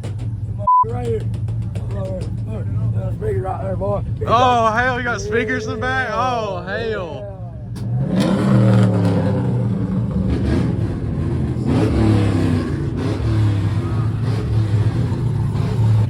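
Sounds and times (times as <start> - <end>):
faint voice over bass: 4.2 - 7.8.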